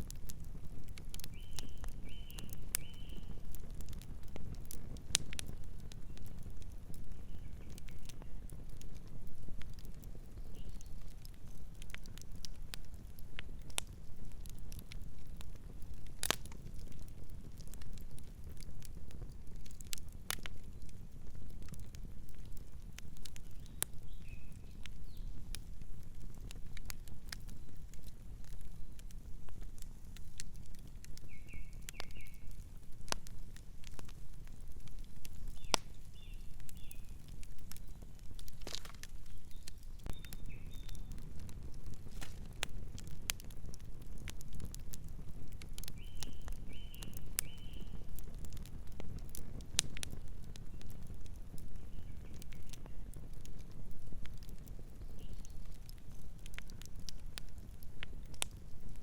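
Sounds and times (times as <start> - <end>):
campfire crackling: 0.0 - 59.0
bird chirping: 39.3 - 41.1.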